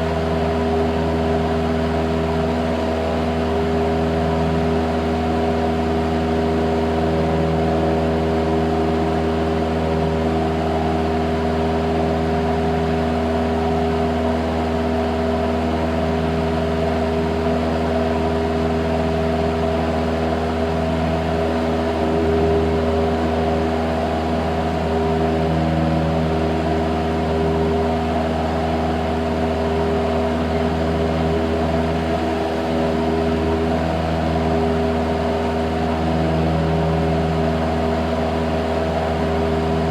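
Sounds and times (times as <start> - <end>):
light aircraft engine and propeller droning: 0.0 - 39.9.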